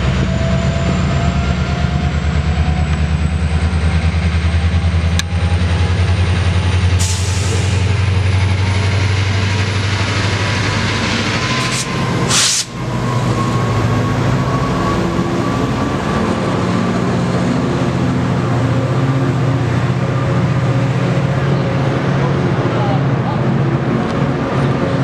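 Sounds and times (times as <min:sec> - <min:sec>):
train passing with diesel rumble: 0:00.0 - 0:25.0
brief rush of noise: 0:11.3 - 0:12.8.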